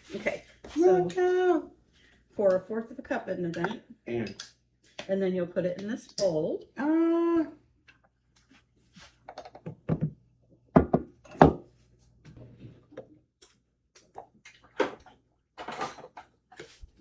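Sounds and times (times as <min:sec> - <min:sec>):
utensils clattering on counter: 0:15.6 - 0:16.3.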